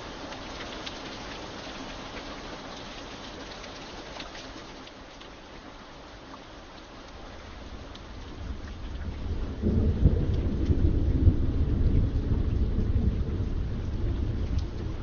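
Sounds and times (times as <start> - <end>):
steady rain: 0.0 - 15.0
thunder rumbling: 8.0 - 15.0.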